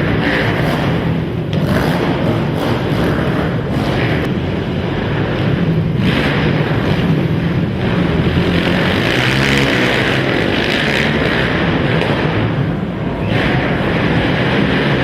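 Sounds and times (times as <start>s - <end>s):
quad engines revving: 0.0s - 15.0s.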